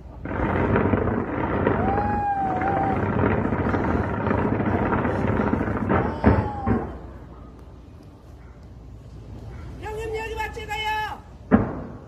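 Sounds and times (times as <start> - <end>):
fireworks bangs and crackles: 0.0 - 9.4, 11.4 - 12.0
firework whistles: 0.2 - 6.9
loud firework bang: 0.2 - 7.2, 11.5 - 12.0.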